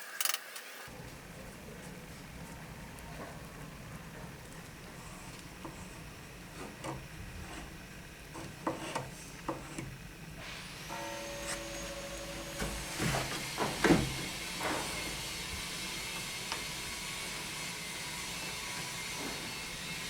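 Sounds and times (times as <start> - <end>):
steady low hum: 0.9 - 20.0
small electric motor running: 4.4 - 20.0.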